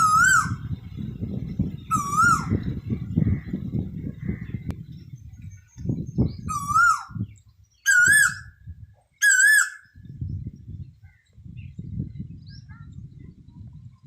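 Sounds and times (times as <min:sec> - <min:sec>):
bird calling wavering notes: 0:00.0 - 0:00.7, 0:01.8 - 0:02.7, 0:06.4 - 0:08.6, 0:09.2 - 0:10.0.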